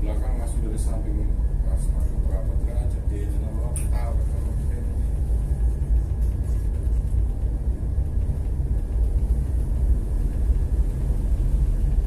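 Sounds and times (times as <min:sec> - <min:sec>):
ship engine rumbling: 0:00.0 - 0:12.0.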